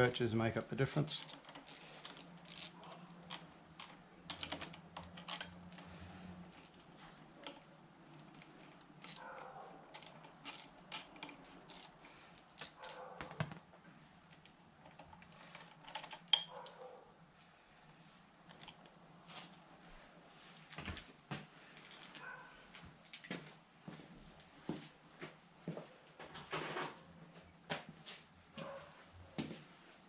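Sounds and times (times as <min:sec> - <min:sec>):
metal tools clinking: 0:00.0 - 0:13.2, 0:14.8 - 0:16.7.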